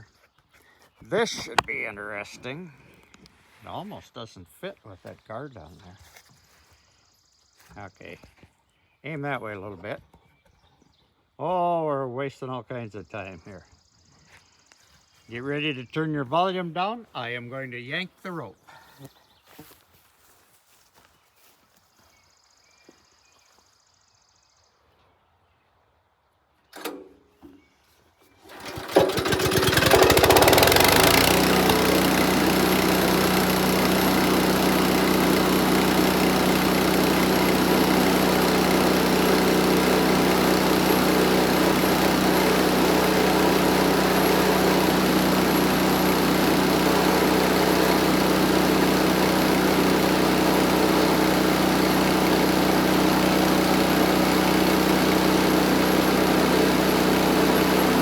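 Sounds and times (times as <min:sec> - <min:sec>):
small gas engine droning: 0:28.4 - 0:58.0.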